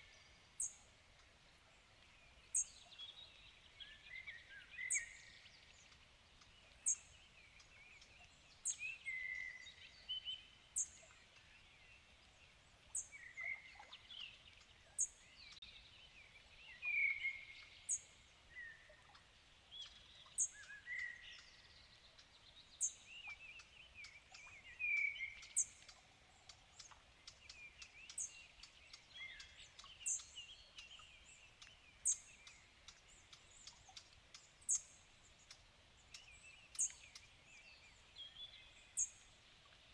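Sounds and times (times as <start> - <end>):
birds chirping and warbling: 22.8 - 39.9.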